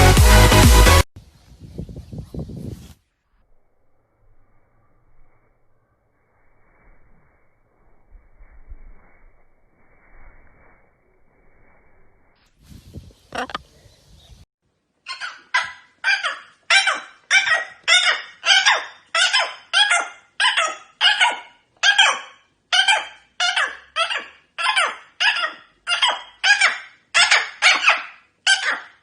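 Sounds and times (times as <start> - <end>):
parrot squawking: 15.1 - 29.0.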